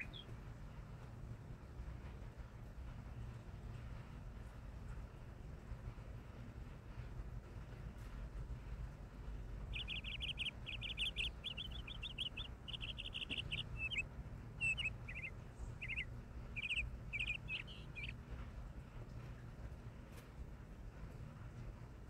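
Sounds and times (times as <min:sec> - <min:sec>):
songbird chirping and trilling: 0:00.0 - 0:00.3, 0:09.6 - 0:18.2
low background rumble: 0:00.0 - 0:22.0.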